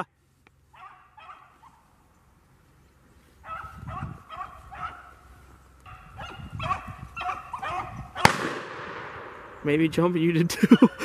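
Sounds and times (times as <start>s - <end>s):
hounds baying: 0.7s - 2.1s, 3.2s - 8.4s.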